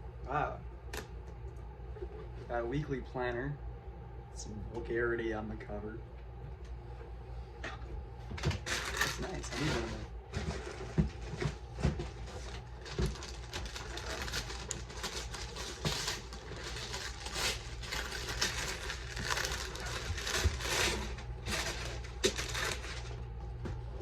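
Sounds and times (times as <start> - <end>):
wrapping paper rustling: 8.4 - 23.3.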